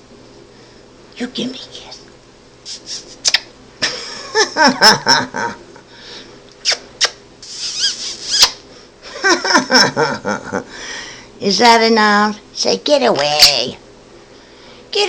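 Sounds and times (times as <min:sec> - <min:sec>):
parrot high squeaks: 0:07.4 - 0:08.6.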